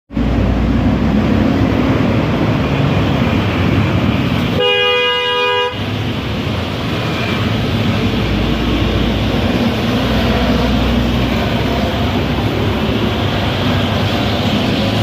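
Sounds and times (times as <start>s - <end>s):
rumbling traffic: 0.1s - 15.0s
two-note horn blaring: 4.6s - 5.8s.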